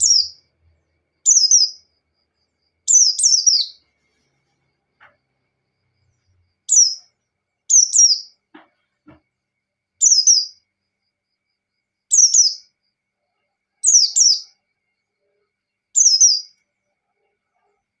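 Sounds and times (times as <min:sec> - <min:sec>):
faint knocks: 0:08.5 - 0:09.3.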